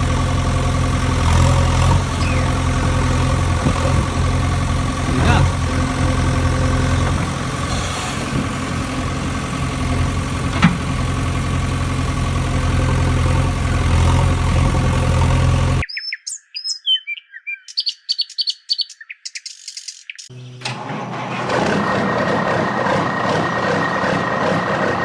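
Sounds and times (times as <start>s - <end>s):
birds chirping: 0.0s - 14.8s, 15.8s - 20.6s
heavy vehicle engine idling: 0.0s - 15.8s, 20.6s - 25.0s.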